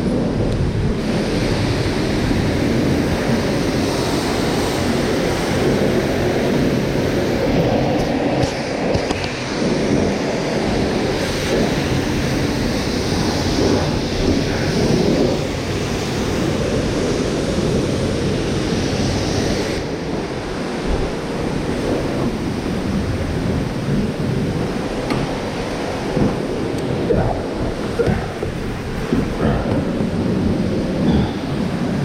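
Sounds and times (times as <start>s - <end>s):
pump low hum: 0.0s - 32.0s
pressure washer spraying: 1.0s - 10.0s, 10.8s - 19.9s.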